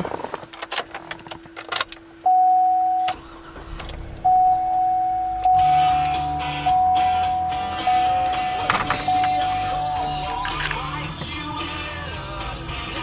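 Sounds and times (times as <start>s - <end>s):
car engine starting and idling: 0.0s - 13.0s
dashboard warning chime: 2.2s - 11.2s
single-tone chime: 4.3s - 10.4s.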